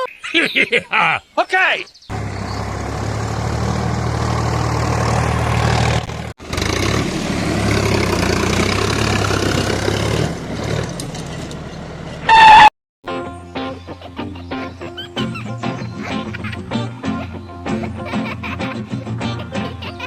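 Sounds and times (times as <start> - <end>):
engine humming: 2.1 - 12.7.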